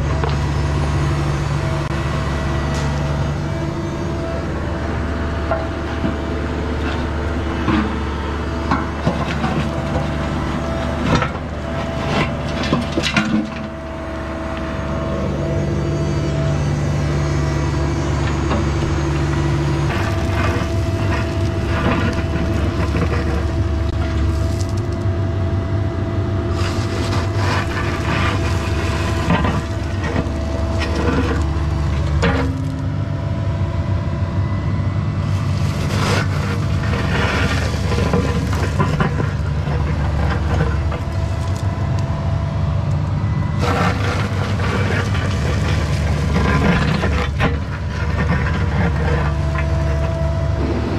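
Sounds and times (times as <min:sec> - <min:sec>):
excavator diesel engine: 0:00.0 - 0:50.9
bucket scraping gravel and soil: 0:06.8 - 0:14.0, 0:18.1 - 0:25.0, 0:26.5 - 0:32.9, 0:35.2 - 0:42.3, 0:43.6 - 0:50.9.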